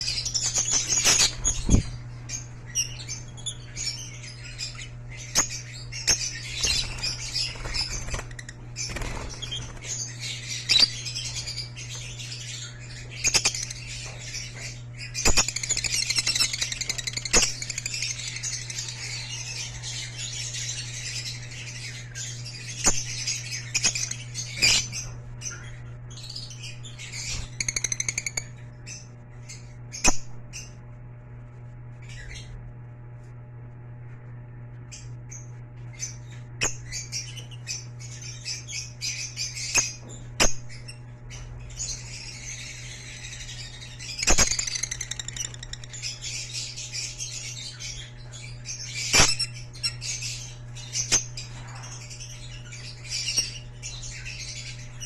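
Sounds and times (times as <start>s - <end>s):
lovebirds chirping and chattering: 0.0s - 55.0s
steady low hum: 0.0s - 55.0s
wing flaps: 6.6s - 9.9s.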